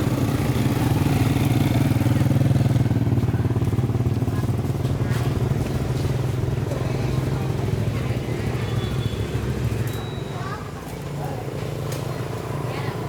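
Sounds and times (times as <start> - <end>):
small motorcycle engine running: 0.0 - 9.8.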